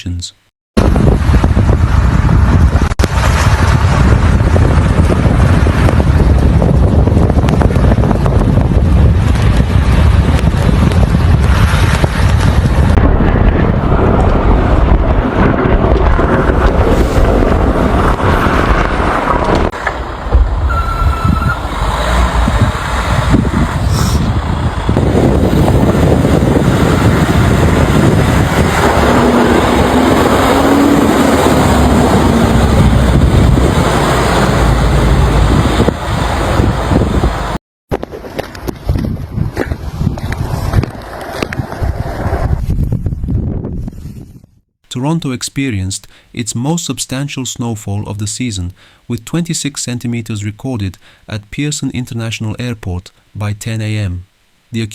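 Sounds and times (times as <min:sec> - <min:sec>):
road traffic: 0:00.8 - 0:43.0
wind buffeting microphone: 0:00.8 - 0:44.7.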